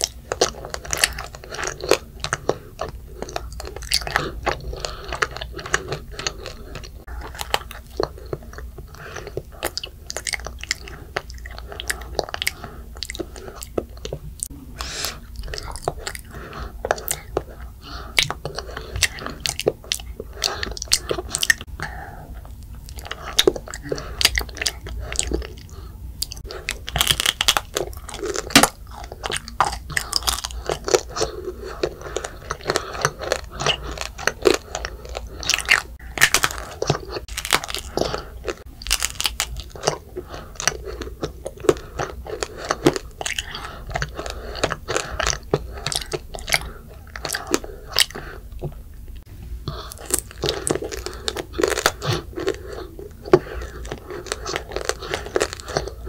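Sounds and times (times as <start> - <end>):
child chewing: 0.0 - 56.0
candied sugar shell crunching: 26.4 - 48.1, 49.9 - 56.0.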